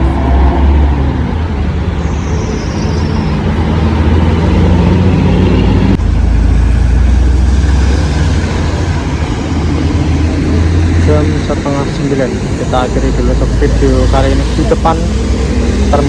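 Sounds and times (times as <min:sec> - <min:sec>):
traffic on wet road: 0:00.0 - 0:16.0
heavy rain hiss: 0:07.3 - 0:16.0.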